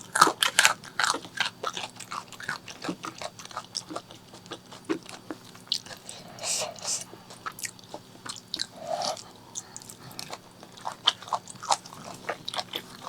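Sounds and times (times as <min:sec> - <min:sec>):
person chewing food: 0:00.0 - 0:13.0
crunching: 0:07.3 - 0:13.0.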